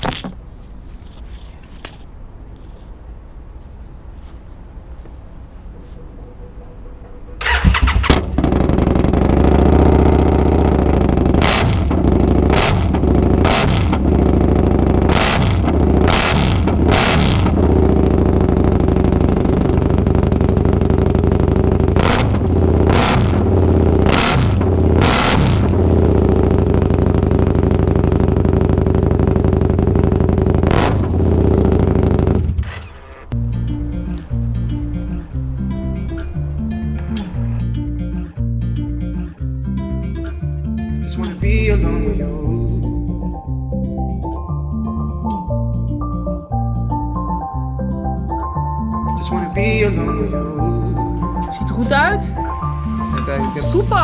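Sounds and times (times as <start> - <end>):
motorcycle engine revving: 7.0 - 37.9, 41.4 - 44.4, 49.4 - 54.0.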